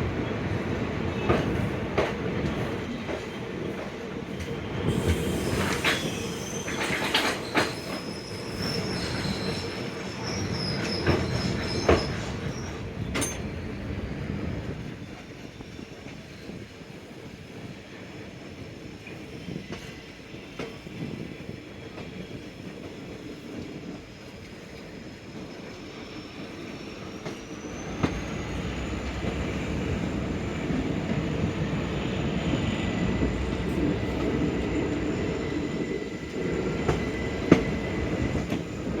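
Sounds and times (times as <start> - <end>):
train wheels on rails: 0.0 - 39.0
high wheel squeal: 4.9 - 12.8, 24.6 - 39.0.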